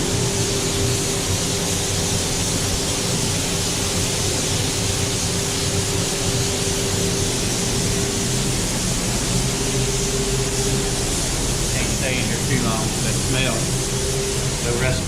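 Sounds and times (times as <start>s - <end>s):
motor hum: 0.0s - 15.0s.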